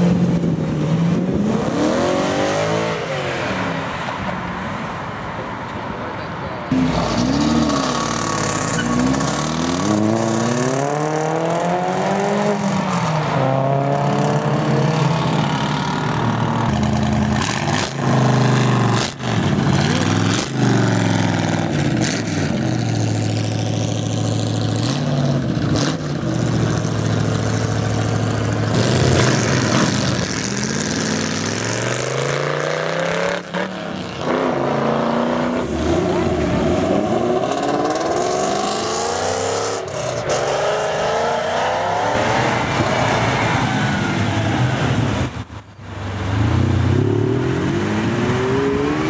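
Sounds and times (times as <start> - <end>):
car engines accelerating hard: 0.0 - 4.3, 6.7 - 45.3, 46.0 - 49.0.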